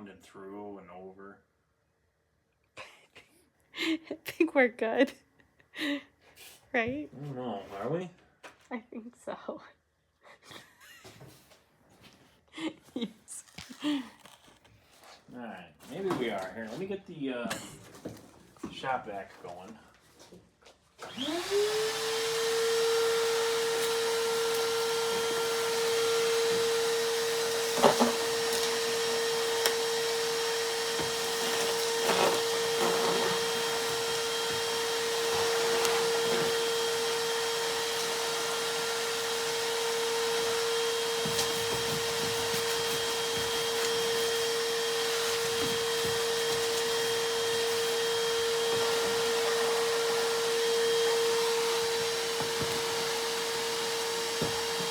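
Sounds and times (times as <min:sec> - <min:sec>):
shop vac running: 0:15.4 - 0:20.3, 0:20.9 - 0:54.9.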